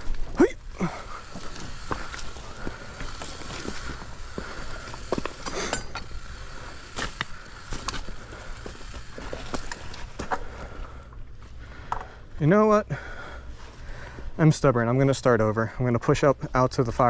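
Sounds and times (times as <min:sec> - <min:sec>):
footsteps on rocky ground: 0:00.0 - 0:10.7
mountain bike clicks and clinks: 0:00.0 - 0:12.2.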